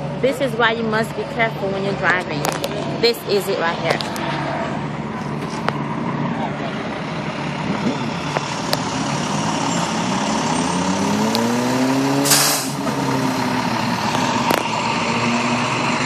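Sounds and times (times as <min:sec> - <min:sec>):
road traffic: 0:00.0 - 0:16.0
vehicle engine passing by: 0:01.2 - 0:16.0
short loud hiss: 0:12.2 - 0:12.8.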